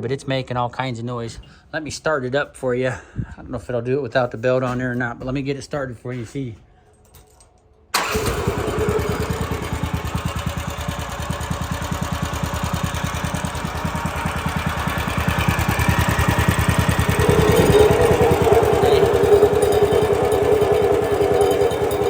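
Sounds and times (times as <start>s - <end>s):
gasoline engine starting and running: 7.9s - 22.0s.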